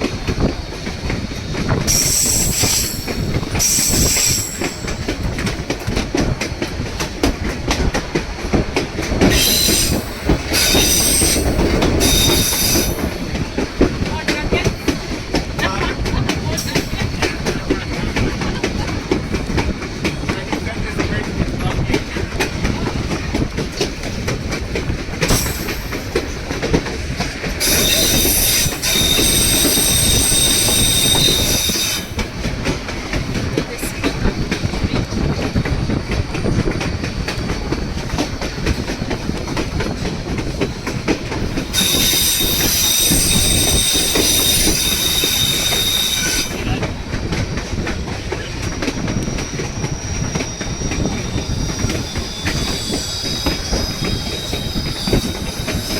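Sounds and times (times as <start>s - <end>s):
train rumbling and clattering on rails: 0.0s - 55.9s
train wheels squealing: 1.3s - 5.6s, 9.2s - 19.3s, 25.2s - 32.5s, 33.9s - 55.9s.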